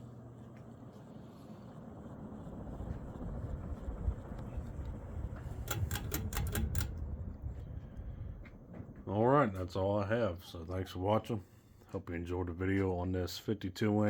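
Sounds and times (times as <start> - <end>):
ceiling fan hum and air rush: 0.0 - 14.0
sharp clicks: 5.4 - 7.1.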